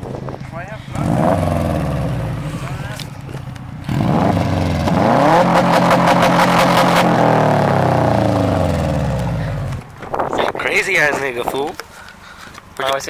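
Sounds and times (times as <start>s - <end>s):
car engine revving hard: 0.9s - 3.0s, 3.8s - 9.8s.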